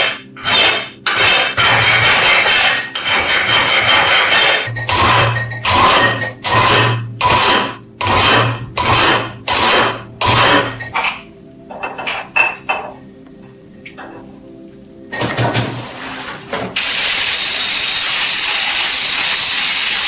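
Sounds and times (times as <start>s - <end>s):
metal scraping rasps: 0.0s - 12.8s.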